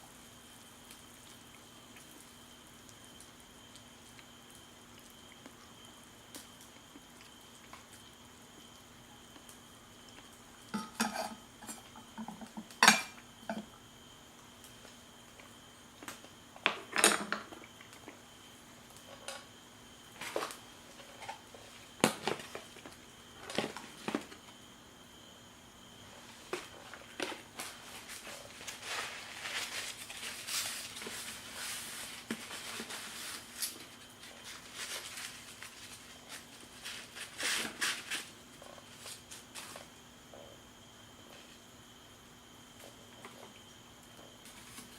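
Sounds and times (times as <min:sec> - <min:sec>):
dishes and utensils clinking: 0:10.8 - 0:13.6.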